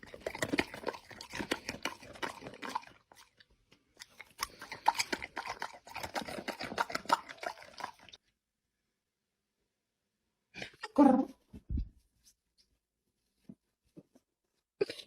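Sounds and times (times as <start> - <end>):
pet chewing crunchy food: 0.0 - 8.2.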